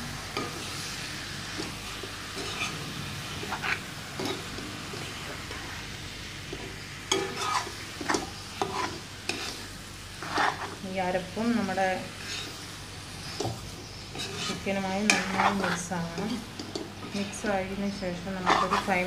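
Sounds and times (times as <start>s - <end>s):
chicken sizzling in a pan: 0.0s - 19.0s
metal spatula scraping pan: 1.5s - 5.7s, 7.1s - 10.8s, 12.0s - 12.6s, 13.2s - 17.5s, 18.2s - 19.0s.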